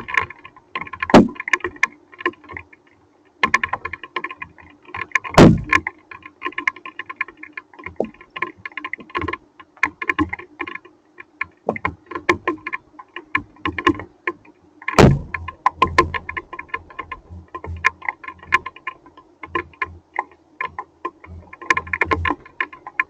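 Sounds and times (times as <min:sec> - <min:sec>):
heavy knock: 0:05.4 - 0:05.7, 0:15.0 - 0:15.4.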